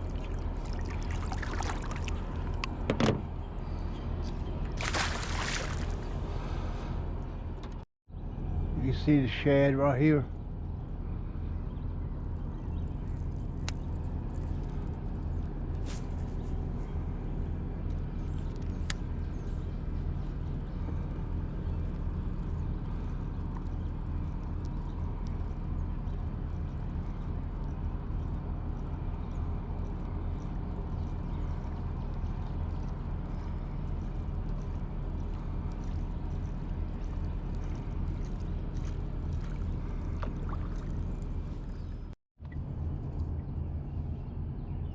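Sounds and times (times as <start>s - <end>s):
boat motor running: 16.0s - 44.3s.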